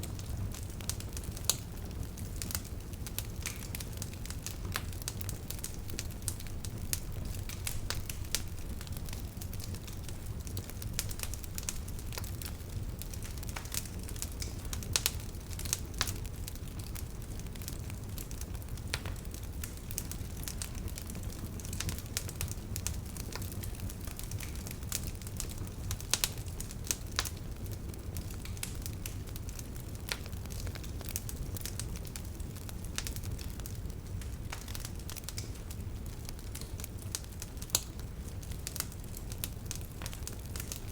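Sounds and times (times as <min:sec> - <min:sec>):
bonfire crackling and popping: 0:00.0 - 0:40.9
low fire rumble: 0:00.0 - 0:40.9.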